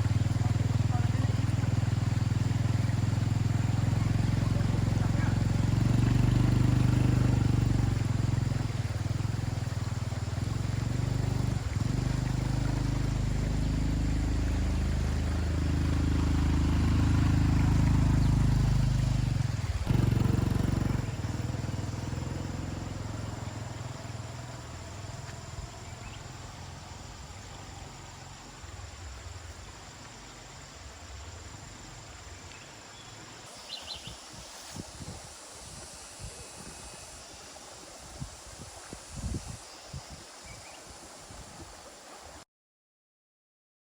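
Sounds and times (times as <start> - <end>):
vehicle engine running: 0.0 - 34.2
quiet outdoor background: 0.0 - 42.4.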